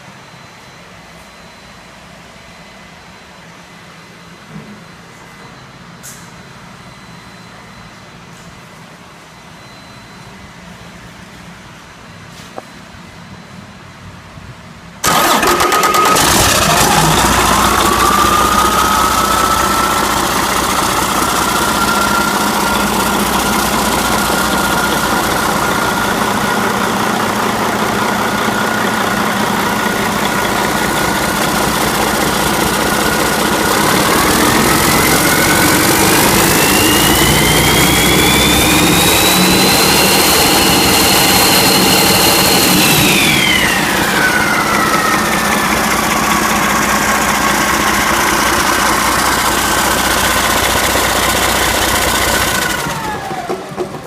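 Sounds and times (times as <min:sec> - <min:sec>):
diesel engine idling and revving: 0:15.0 - 0:54.0
engine whine: 0:15.0 - 0:54.0.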